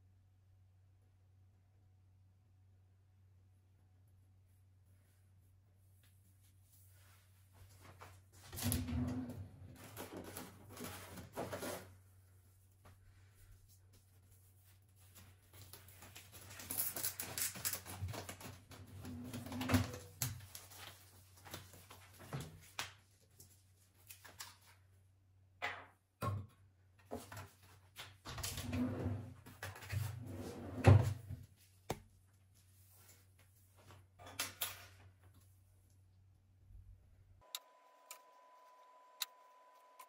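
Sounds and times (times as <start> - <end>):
rustling and clatter: 6.8 - 12.1, 13.7 - 22.8.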